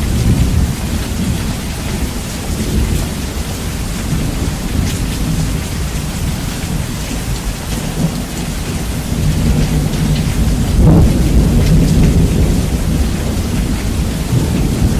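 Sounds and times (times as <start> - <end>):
steady rain: 0.0 - 14.9
thunder rumbling: 0.0 - 14.9.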